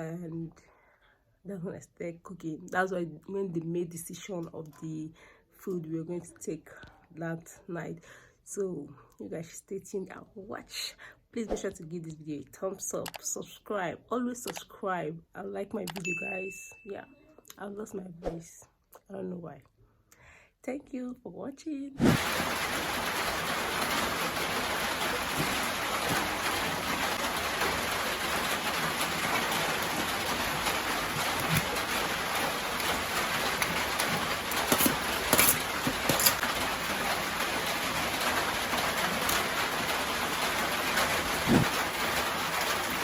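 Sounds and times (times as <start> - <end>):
rain falling: 22.0 - 43.0.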